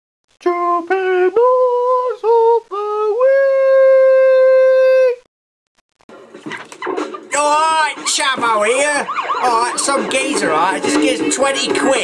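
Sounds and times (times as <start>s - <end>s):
person humming a wordless tune: 0.4s - 5.3s.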